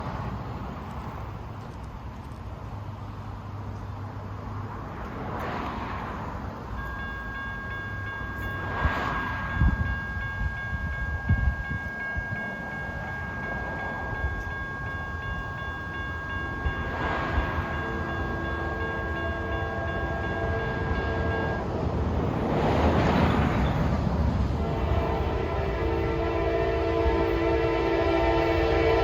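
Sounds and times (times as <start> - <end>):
crossing warning bell ringing: 6.6 - 29.0
distant train horn blasts: 15.2 - 21.7, 24.4 - 29.0.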